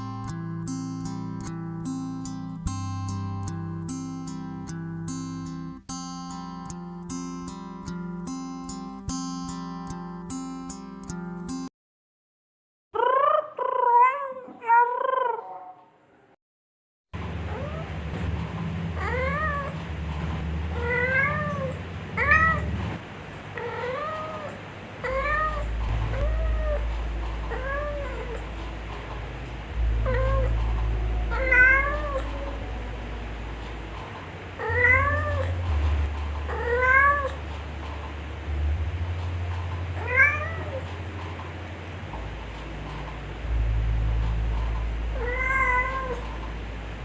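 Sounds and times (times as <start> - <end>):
cat meowing: 13.0 - 15.9, 17.5 - 18.0, 19.0 - 19.8, 20.7 - 22.7, 23.6 - 26.9, 27.5 - 28.5, 30.0 - 30.6, 31.2 - 32.8, 34.6 - 35.7, 36.5 - 37.4, 40.0 - 40.9, 45.1 - 46.3.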